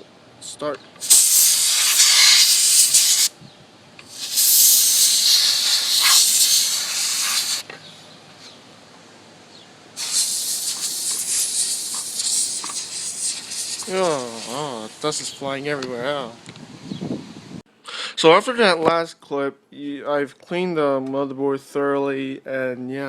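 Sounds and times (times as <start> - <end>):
air pump hissing blasts: 1.0 - 3.3, 4.0 - 7.7, 10.0 - 15.4.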